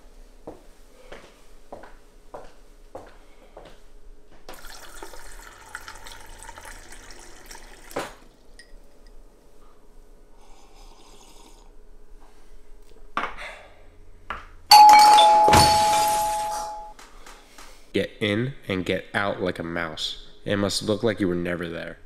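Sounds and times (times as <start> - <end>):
water pouring into a glass: 4.5 - 8.8, 10.6 - 11.7
doorbell chime: 14.7 - 16.9.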